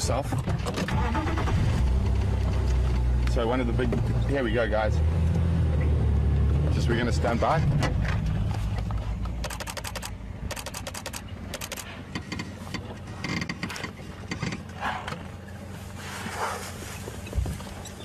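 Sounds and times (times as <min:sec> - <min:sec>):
vehicle engine idling: 0:00.0 - 0:18.0
camera shutters firing: 0:09.4 - 0:11.9.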